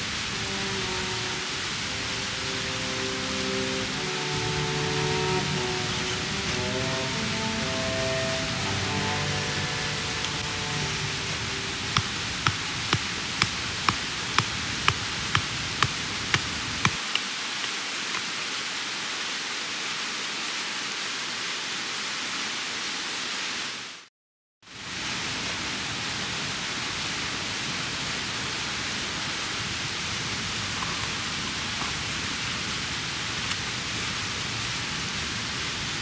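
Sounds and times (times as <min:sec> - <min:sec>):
stream water rushing: 0:00.0 - 0:23.9
light ticking beat: 0:10.1 - 0:17.0.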